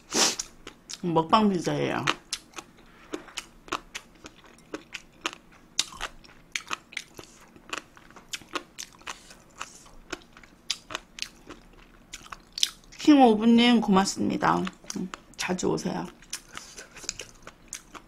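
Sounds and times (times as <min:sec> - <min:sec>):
person chewing food: 0:00.1 - 0:01.0, 0:02.0 - 0:13.0, 0:14.6 - 0:18.0.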